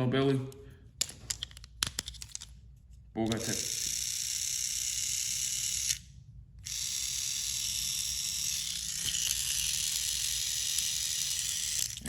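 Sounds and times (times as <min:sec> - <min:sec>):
toy train motor whirring: 0:03.3 - 0:12.0.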